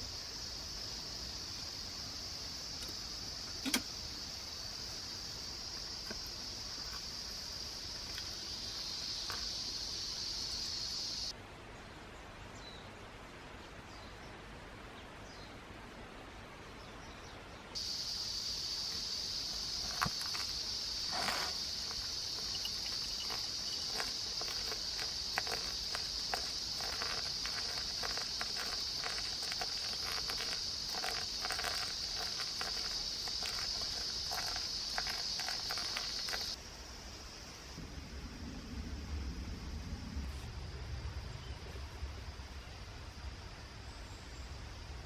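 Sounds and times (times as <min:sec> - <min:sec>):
insects droning: 0:00.0 - 0:11.3, 0:17.8 - 0:45.0
rustling: 0:17.8 - 0:36.6.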